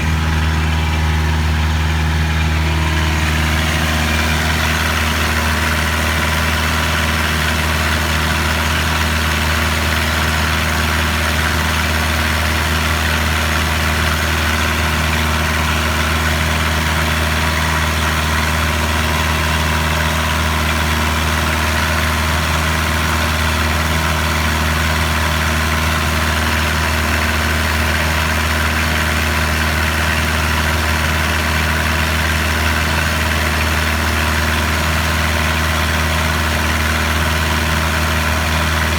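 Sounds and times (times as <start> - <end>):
boat engine droning: 0.0 - 19.7, 28.4 - 38.9.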